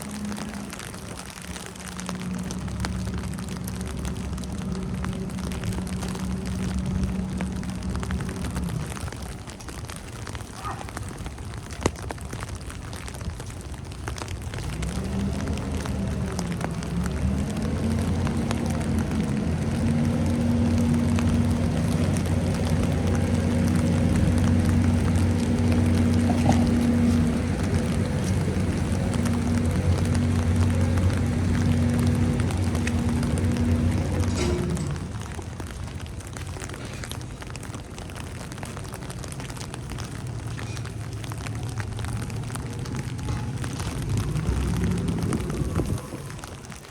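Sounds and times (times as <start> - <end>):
low steady rumble: 0.0 - 46.9
vehicle engine running: 0.0 - 46.9
wet snow pattering: 0.0 - 46.9.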